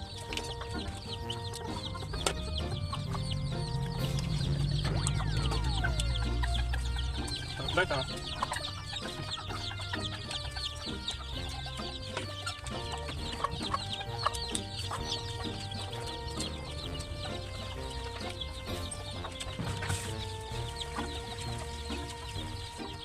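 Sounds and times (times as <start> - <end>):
birds chirping and clucking: 0.0 - 23.0
steady low hum: 1.5 - 9.7.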